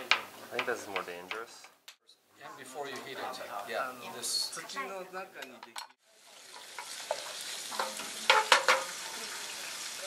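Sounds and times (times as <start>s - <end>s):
vegetables sizzling in a pan: 6.0s - 10.0s.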